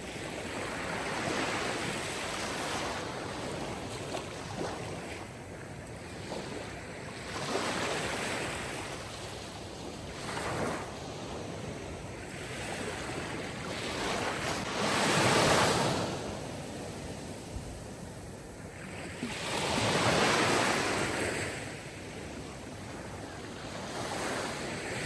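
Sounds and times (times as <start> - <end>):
sea waves washing ashore: 0.0 - 25.0.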